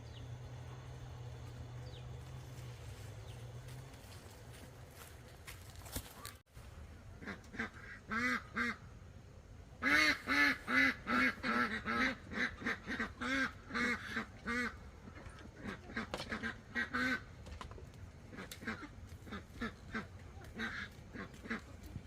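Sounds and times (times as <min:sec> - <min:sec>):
fowl calling: 0:09.8 - 0:17.3.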